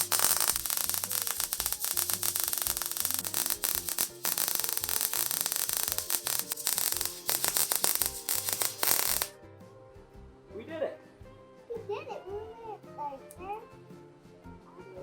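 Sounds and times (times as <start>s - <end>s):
welder arc crackling: 0.0s - 9.4s.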